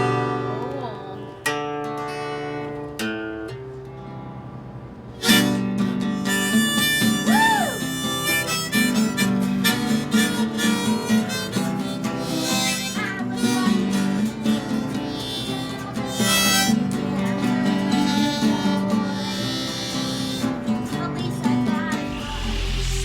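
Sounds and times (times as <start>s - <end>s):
acoustic guitar strumming: 0.0s - 23.0s
harmonica melody: 5.2s - 23.0s.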